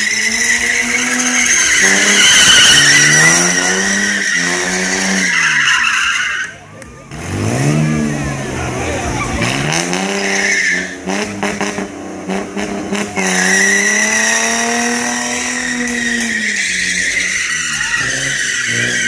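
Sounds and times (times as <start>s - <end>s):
car engine revving hard: 0.0s - 5.8s, 7.0s - 19.0s
tires squealing: 0.0s - 19.0s.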